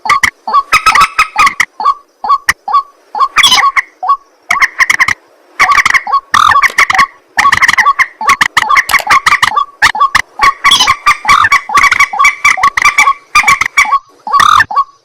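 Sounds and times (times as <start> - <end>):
birds croaking calls: 0.0 - 15.0.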